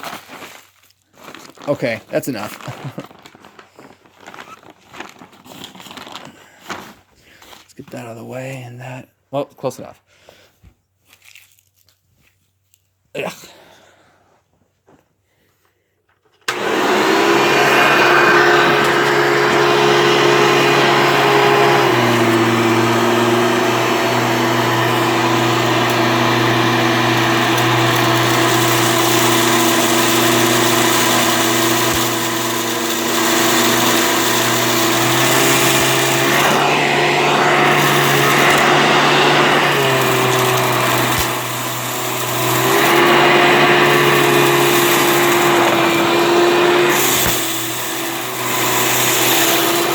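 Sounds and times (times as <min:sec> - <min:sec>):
vacuum cleaner running: 0:16.5 - 0:49.9.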